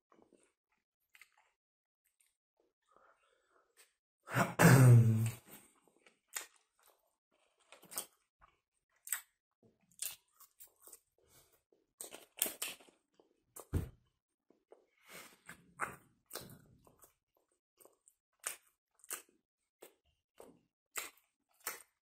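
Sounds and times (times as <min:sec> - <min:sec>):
man chewing: 0:00.1 - 0:04.0, 0:05.2 - 0:13.7, 0:14.5 - 0:22.0
mouth clicks and smacks: 0:06.0 - 0:06.7, 0:08.9 - 0:09.4.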